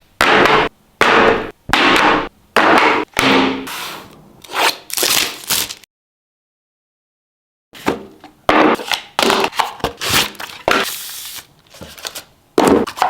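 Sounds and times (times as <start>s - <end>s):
packaging scraping and rubbing: 3.7s - 5.8s, 8.8s - 13.0s.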